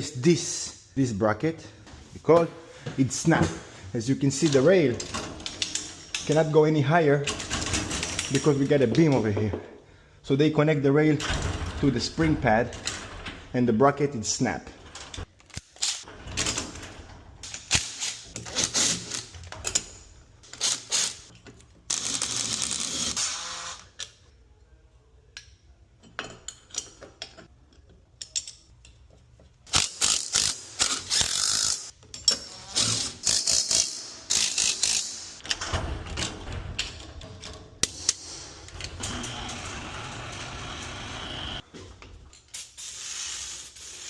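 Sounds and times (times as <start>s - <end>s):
metal tool clicks and ratcheting: 29.7s - 35.5s
power tool running: 39.0s - 41.6s.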